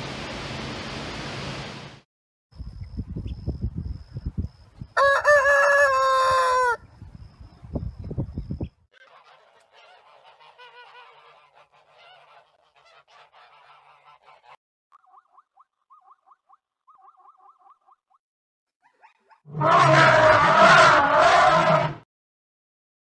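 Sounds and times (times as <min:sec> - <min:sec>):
goose honking: 0:09.0 - 0:14.6.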